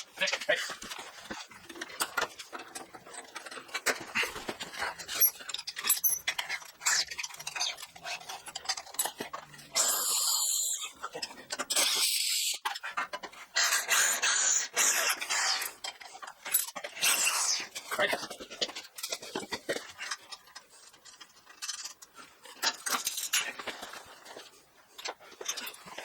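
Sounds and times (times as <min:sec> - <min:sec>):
tools clicking and knocking: 0:00.7 - 0:09.7.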